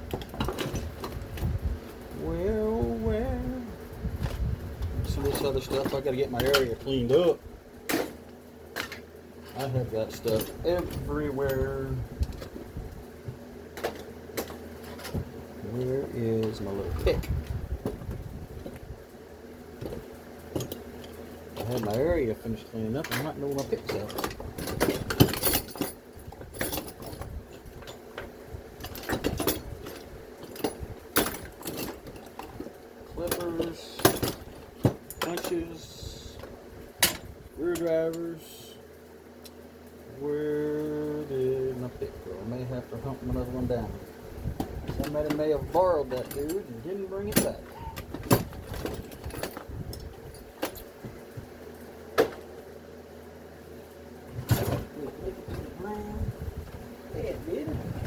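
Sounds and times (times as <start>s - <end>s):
metal hand tools clinking: 35.0s - 35.8s.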